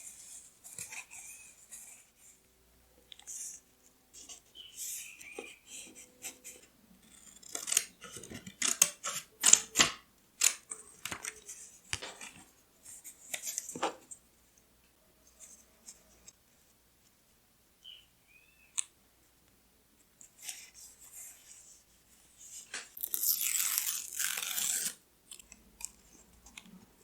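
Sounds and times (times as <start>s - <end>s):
scissors snipping paper: 23.0s - 25.0s.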